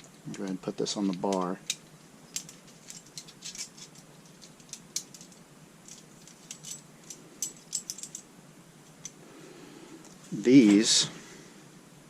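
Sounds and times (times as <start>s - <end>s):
saw chain links clicking: 0.3s - 8.2s.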